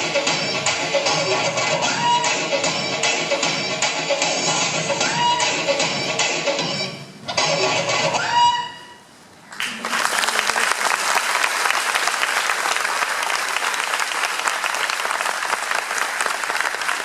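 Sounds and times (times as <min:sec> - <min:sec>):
dance music: 0:00.0 - 0:08.5
audience applause: 0:09.5 - 0:17.0.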